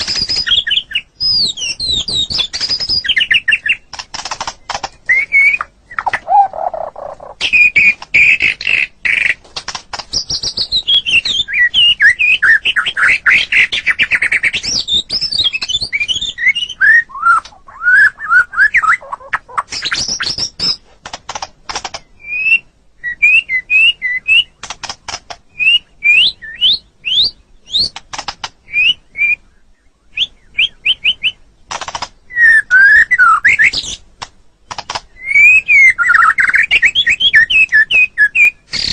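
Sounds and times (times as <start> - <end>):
bird singing whistles and clicks: 0.0 - 29.4, 30.1 - 38.9.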